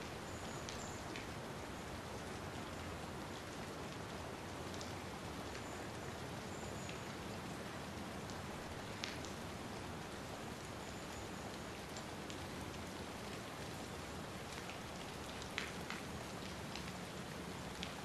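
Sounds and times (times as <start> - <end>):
steady rain falling: 0.0 - 18.0
raindrop taps: 9.0 - 9.4, 14.5 - 17.0, 17.7 - 18.0.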